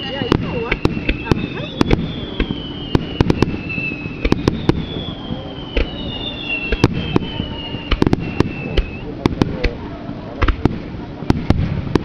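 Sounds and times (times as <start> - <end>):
falling whistling tones: 0.0 - 9.1
firework shells bursting: 0.0 - 9.8.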